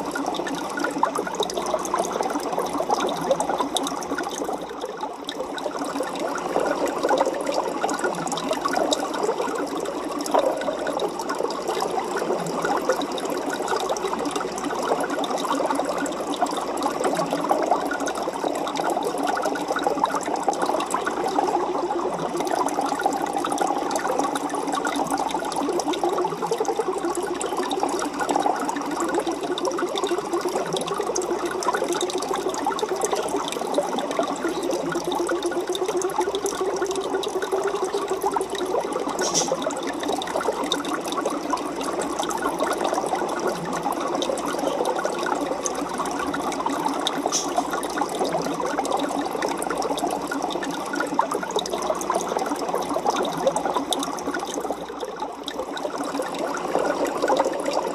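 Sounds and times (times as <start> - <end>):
aquarium water bubbling: 0.0 - 57.9
small pops and splashes: 39.2 - 39.7, 47.1 - 48.0.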